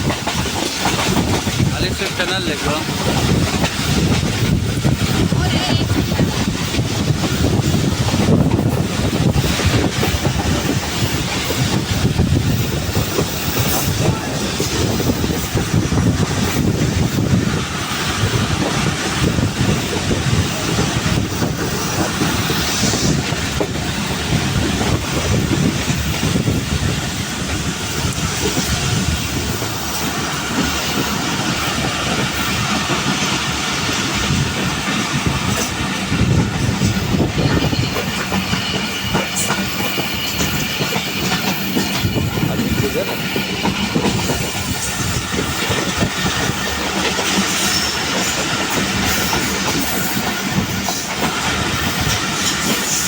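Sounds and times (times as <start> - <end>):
train wheels clattering: 0.0 - 53.0.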